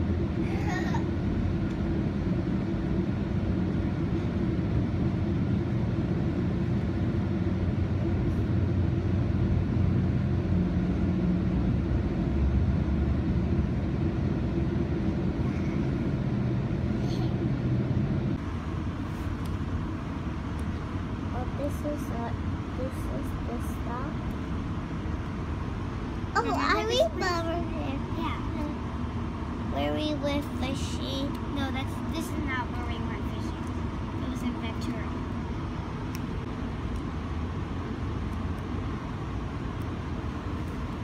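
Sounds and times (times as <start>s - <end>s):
train rumbling inside car: 5.4s - 29.0s, 29.6s - 35.6s.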